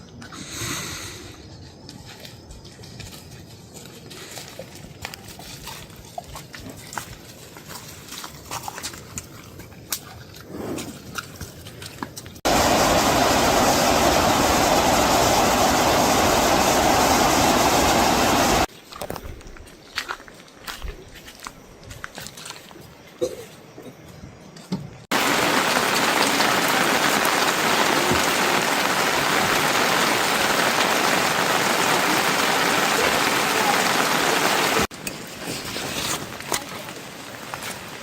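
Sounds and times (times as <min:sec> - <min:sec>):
loud rush of water: 0:12.5 - 0:18.7, 0:25.1 - 0:35.0, 0:36.3 - 0:38.0.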